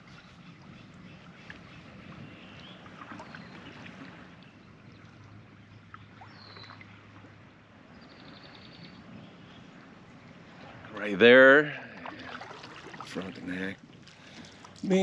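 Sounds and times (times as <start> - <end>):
water lapping at hull: 0.0 - 15.0
water trickling off paddle: 11.7 - 15.0.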